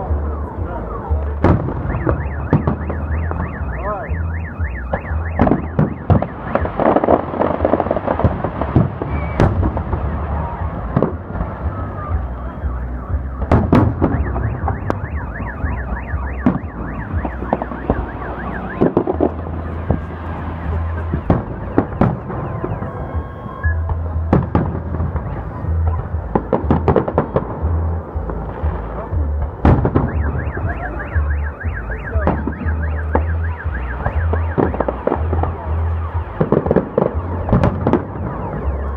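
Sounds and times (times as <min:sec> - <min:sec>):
fireworks bangs and crackles: 0:00.0 - 0:38.9
car alarm warbling: 0:01.6 - 0:07.8, 0:12.0 - 0:24.0, 0:29.9 - 0:38.9.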